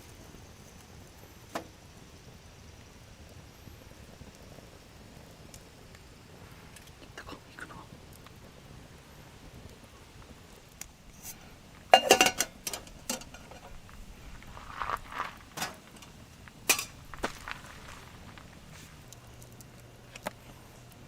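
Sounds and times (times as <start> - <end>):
cookware and utensils clinking: 11.2 - 13.8, 15.6 - 17.0.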